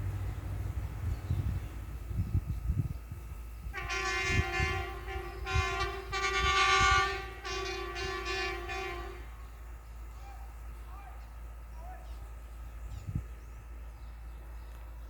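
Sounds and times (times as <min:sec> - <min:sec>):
rail inspection car rumbling: 0:00.0 - 0:15.0
train horn blasts: 0:03.7 - 0:09.6.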